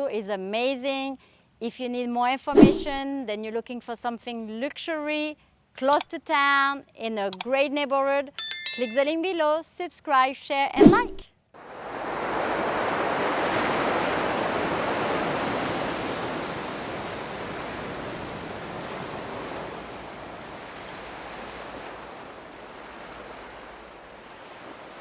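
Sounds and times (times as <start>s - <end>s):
ocean surf washing: 10.8s - 25.0s.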